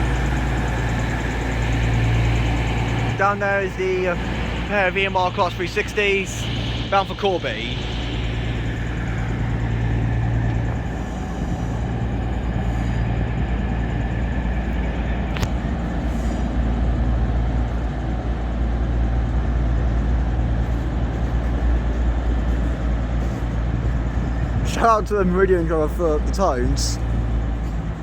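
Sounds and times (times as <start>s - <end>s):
diesel train engines rumbling: 0.0s - 28.0s.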